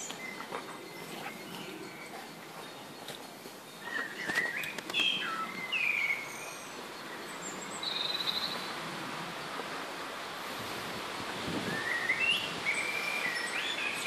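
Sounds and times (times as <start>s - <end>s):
small bird singing: 0.0s - 8.7s, 11.7s - 14.0s
steady outdoor hiss: 0.0s - 14.0s.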